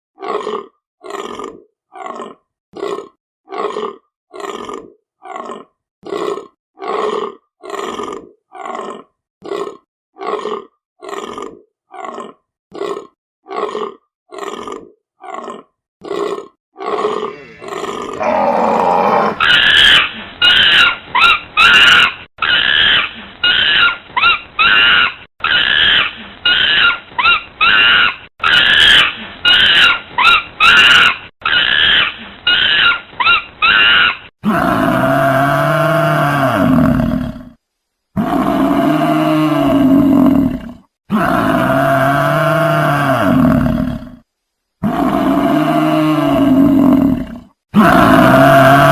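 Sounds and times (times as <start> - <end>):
animal grunts: 0.2 - 19.4
animal roars: 0.2 - 19.6, 34.4 - 37.6, 38.2 - 48.9
quick repeated animal calls: 17.2 - 34.3.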